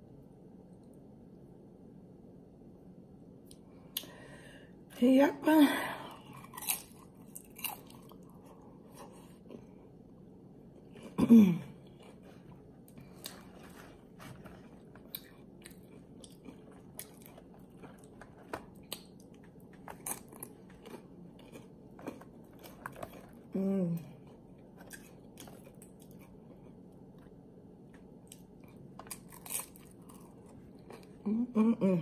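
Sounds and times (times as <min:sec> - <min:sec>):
crunching tortilla chips: 0:06.2 - 0:09.7, 0:11.8 - 0:31.2
person humming: 0:23.6 - 0:24.2.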